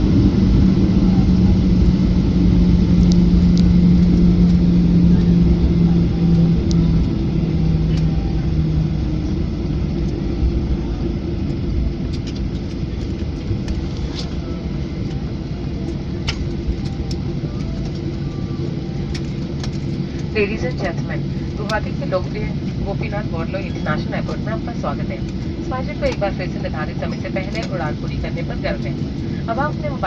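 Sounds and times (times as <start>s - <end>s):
airliner cabin rumble: 0.0s - 30.0s.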